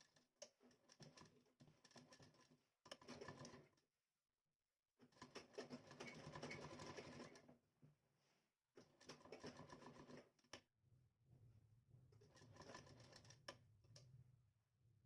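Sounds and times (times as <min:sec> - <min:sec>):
sewing machine clattering: 0:00.7 - 0:03.7, 0:05.2 - 0:07.5, 0:08.8 - 0:10.3, 0:12.3 - 0:13.4.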